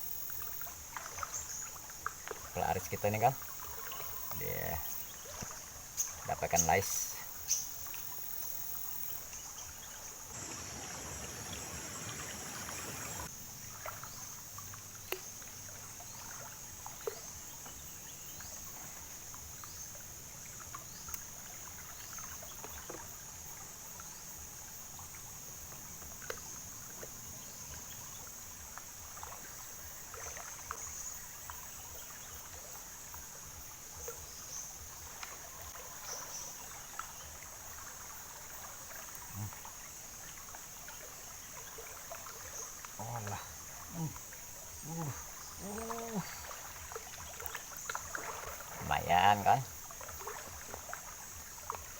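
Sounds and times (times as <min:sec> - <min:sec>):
rush of water: 0:00.0 - 0:17.7, 0:24.6 - 0:51.9
water trickling: 0:00.0 - 0:51.9
small splashes: 0:00.3 - 0:08.2, 0:09.2 - 0:23.6, 0:25.8 - 0:51.9
high-pitched insect drone: 0:10.3 - 0:13.3.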